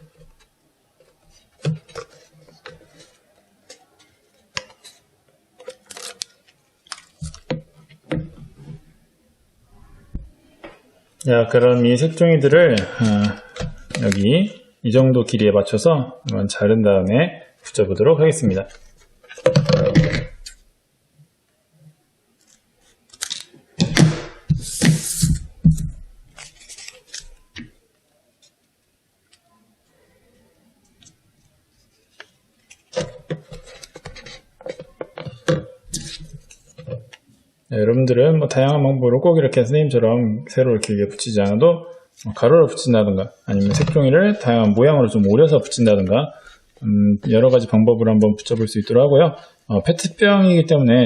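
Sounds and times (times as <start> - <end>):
paper rustling: 22.4 - 28.6, 30.9 - 37.0.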